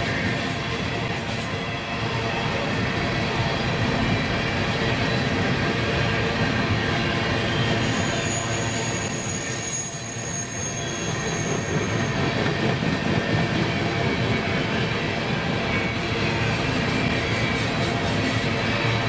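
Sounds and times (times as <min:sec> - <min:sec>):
high wheel squeal: 0:00.0 - 0:12.5
train wheels rumbling on rails: 0:00.0 - 0:19.0.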